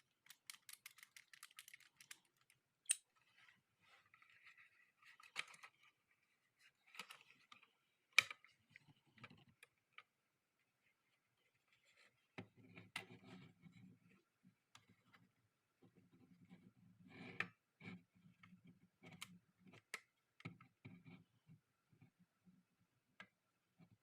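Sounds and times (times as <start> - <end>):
plastic clicks: 0.2 - 3.1.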